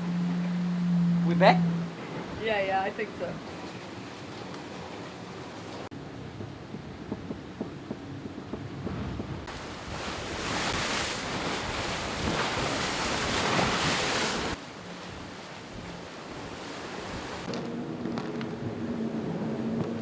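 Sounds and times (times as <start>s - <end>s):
low steady hum: 0.0s - 5.2s
water rushing past boat hull: 0.0s - 20.0s
wind on microphone: 5.8s - 20.0s.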